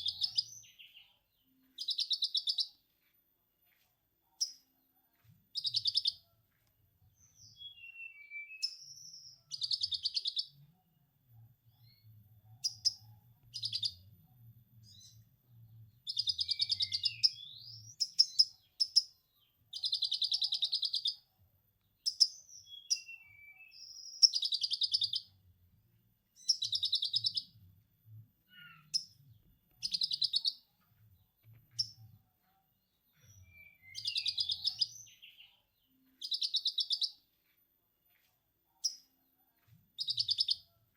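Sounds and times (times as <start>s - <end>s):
faint low hum: 9.2s - 19.9s, 25.3s - 36.2s.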